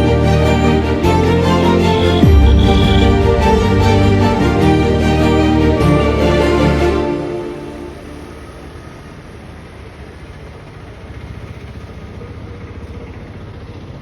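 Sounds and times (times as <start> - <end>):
background music: 0.0 - 8.7
railway station ambience rumble: 0.0 - 14.0.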